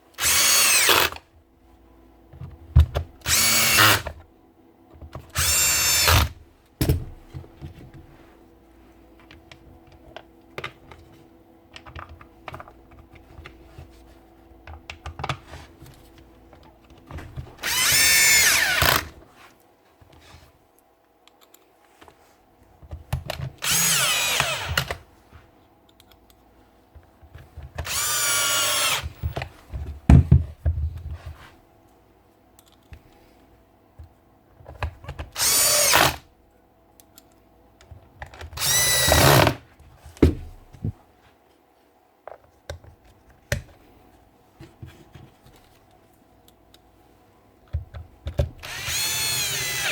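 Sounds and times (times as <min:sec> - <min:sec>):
cordless drill motor bursts: 0:00.2 - 0:01.2, 0:03.2 - 0:04.1, 0:05.4 - 0:06.3, 0:17.6 - 0:19.1, 0:23.6 - 0:25.0, 0:27.8 - 0:29.2, 0:35.4 - 0:36.2, 0:38.6 - 0:39.6, 0:48.6 - 0:49.9.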